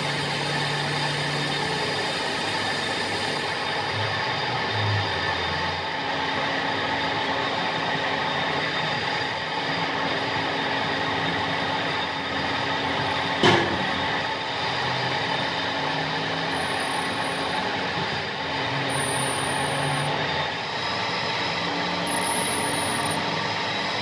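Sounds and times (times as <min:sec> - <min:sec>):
machine humming: 0:00.0 - 0:04.3, 0:16.4 - 0:24.0.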